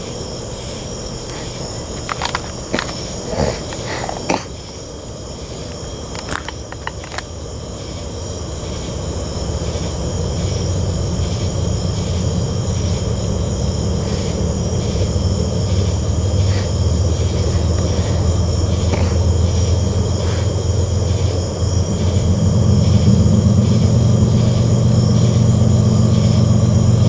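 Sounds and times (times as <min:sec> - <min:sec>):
crickets chirping: 0:00.0 - 0:27.0
train rumble: 0:08.5 - 0:27.0.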